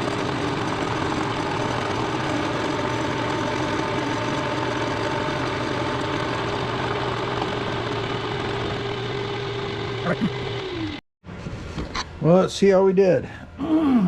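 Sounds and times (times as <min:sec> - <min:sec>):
milling machine running: 0:00.0 - 0:11.0.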